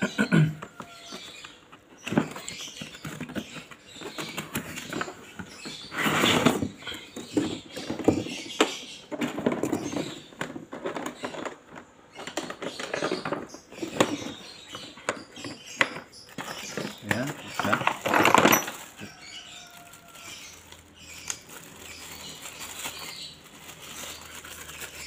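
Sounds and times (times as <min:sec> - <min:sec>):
packaging rustling: 0:13.8 - 0:25.0.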